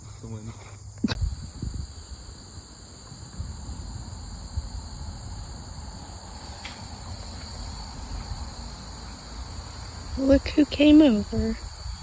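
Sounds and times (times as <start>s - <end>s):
shrill insect chorus: 0.0s - 12.0s
wind on microphone: 1.0s - 6.2s, 10.1s - 12.0s.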